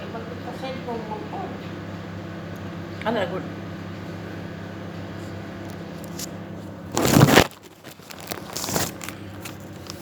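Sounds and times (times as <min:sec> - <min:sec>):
plastic or paper crinkling: 0:06.9 - 0:10.0.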